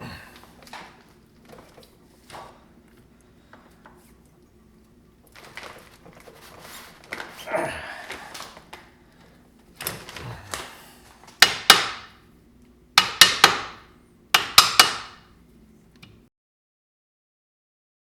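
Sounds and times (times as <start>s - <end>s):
hammer striking metal: 11.4s - 12.2s, 13.0s - 15.2s.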